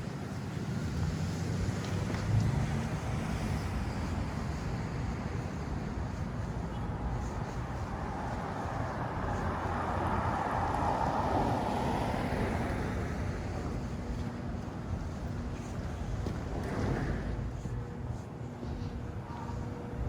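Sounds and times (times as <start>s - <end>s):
traffic rumble: 0.0s - 20.0s
vehicle passing: 7.0s - 17.8s.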